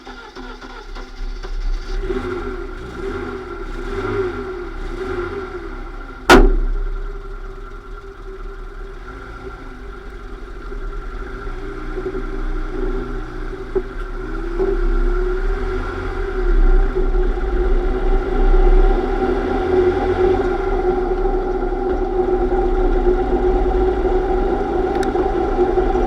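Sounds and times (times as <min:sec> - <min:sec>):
car drivetrain mechanical whine: 0:00.0 - 0:26.0
loud sharp knock: 0:06.3 - 0:06.9.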